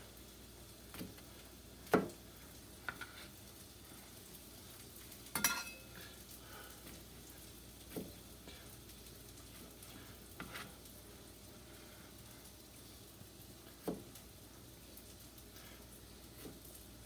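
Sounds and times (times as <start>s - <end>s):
patties sizzling in a frying pan: 0.0s - 17.0s.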